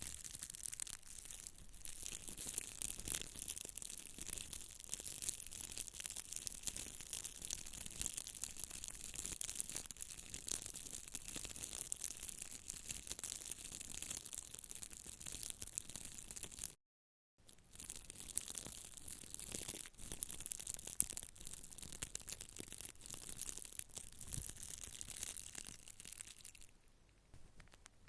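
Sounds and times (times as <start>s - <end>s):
scratchy crackling friction rustle: 22.3s - 28.0s.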